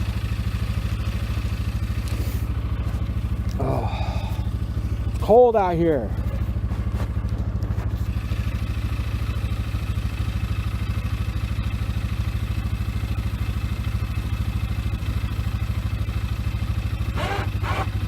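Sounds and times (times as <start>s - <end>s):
atv engine idling: 0.0s - 18.0s
electric winch whining: 17.0s - 18.0s.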